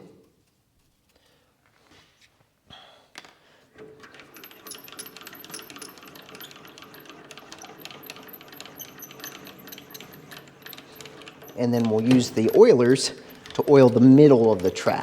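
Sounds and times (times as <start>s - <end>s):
lathe rapid metallic clicks: 3.8s - 15.0s.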